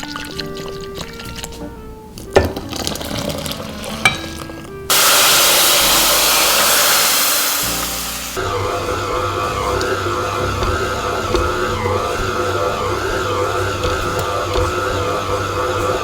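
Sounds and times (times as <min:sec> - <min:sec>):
soft background music: 0:00.0 - 0:16.0
loud hiss: 0:04.9 - 0:08.6.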